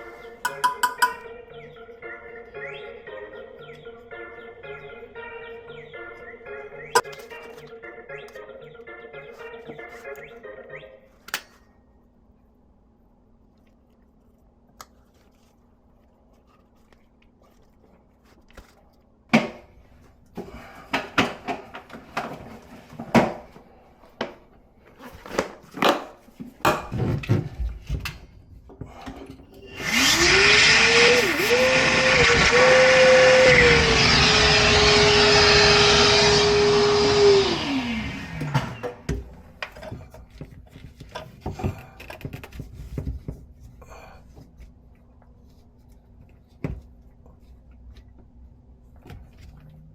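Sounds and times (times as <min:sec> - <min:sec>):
small electric motor whining: 0:29.6 - 0:38.9.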